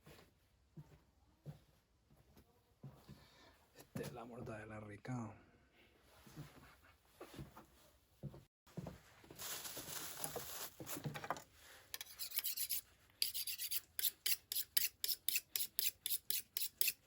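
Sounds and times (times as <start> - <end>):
rasping scraping rubs: 11.9 - 17.0.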